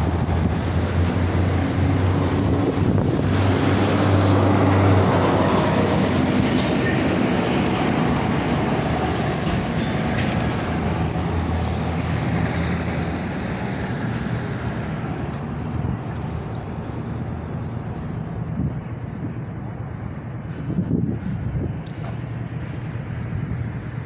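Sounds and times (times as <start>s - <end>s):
train running past: 0.0s - 18.5s.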